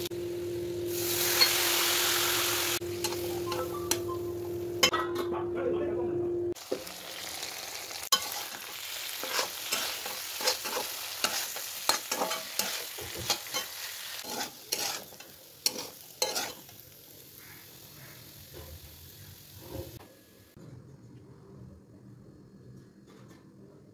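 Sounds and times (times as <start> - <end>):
slices sizzling in oil: 0.8 - 4.0, 6.6 - 20.0
metal spatula scraping a pan: 8.1 - 16.8.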